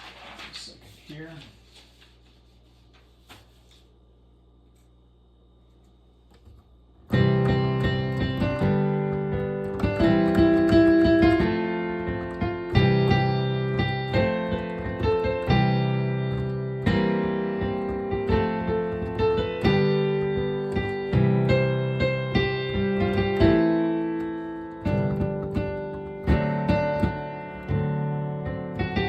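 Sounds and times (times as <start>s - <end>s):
slow piano melody with chords: 7.0s - 29.0s.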